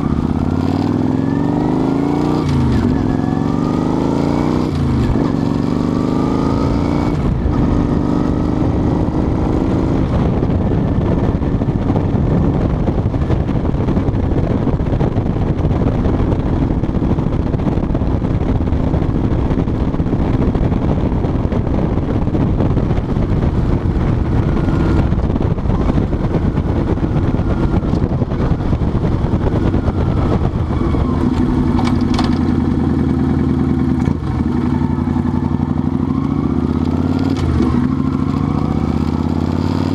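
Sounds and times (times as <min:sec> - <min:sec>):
motorcycle engine running: 0:00.0 - 0:39.9
steady rush of noise: 0:06.5 - 0:36.0.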